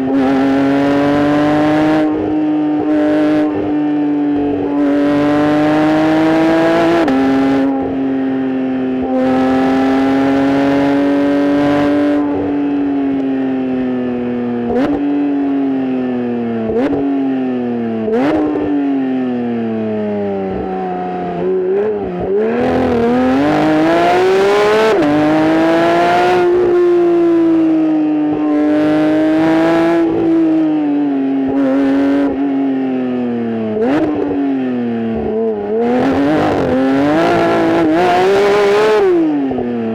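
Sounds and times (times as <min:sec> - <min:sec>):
car engine revving through exhaust: 0:00.0 - 0:08.1, 0:08.9 - 0:13.3, 0:14.6 - 0:15.1, 0:18.0 - 0:18.7, 0:20.3 - 0:30.6, 0:31.5 - 0:32.4, 0:33.7 - 0:34.4, 0:35.1 - 0:39.7
rev-matched engine blips: 0:00.0 - 0:32.5, 0:33.2 - 0:39.9.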